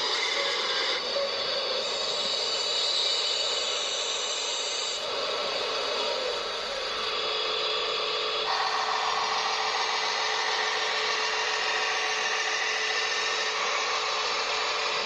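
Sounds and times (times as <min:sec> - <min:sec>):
toy electric motor whirring: 0:00.0 - 0:15.0.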